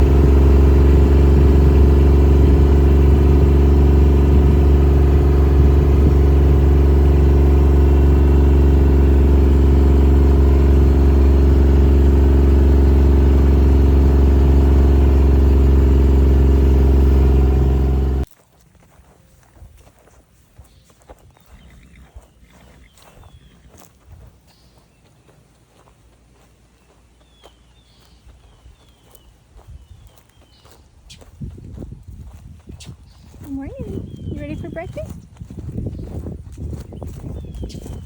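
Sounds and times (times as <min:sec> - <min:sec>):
engine running steadily: 0:00.0 - 0:18.3, 0:21.4 - 0:38.0.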